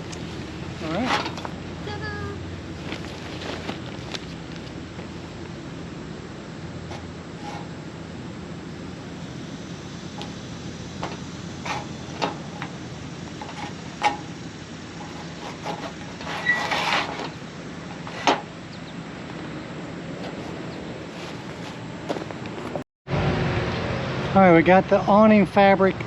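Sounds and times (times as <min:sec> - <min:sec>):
low background hum: 0:00.0 - 0:26.0
fabric rustling: 0:02.8 - 0:05.2.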